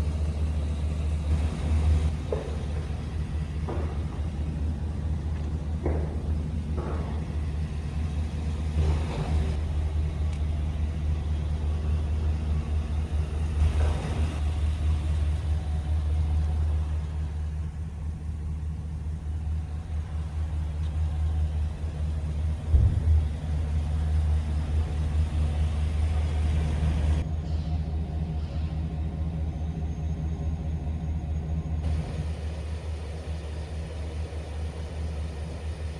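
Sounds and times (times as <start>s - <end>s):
pickup engine running at low revs: 0.0s - 27.3s, 31.8s - 35.9s
short thump: 22.6s - 23.4s.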